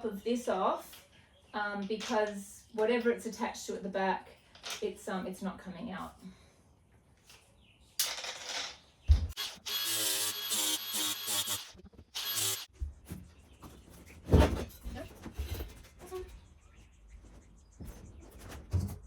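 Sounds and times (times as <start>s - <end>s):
angle grinder grinding metal: 9.3s - 12.7s.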